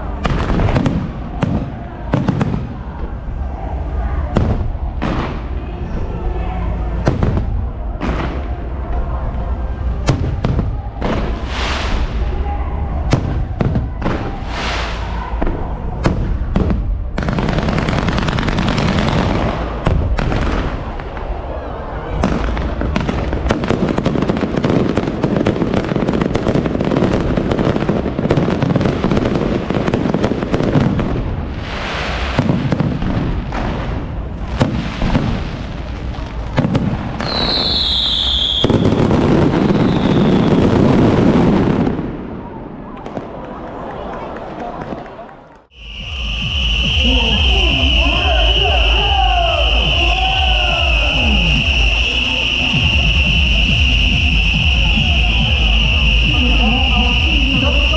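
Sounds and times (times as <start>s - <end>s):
fireworks bangs and crackle: 0.0s - 5.8s, 6.9s - 43.8s, 44.8s - 57.9s
firework whistle falling in pitch: 37.2s - 39.0s, 45.7s - 57.9s.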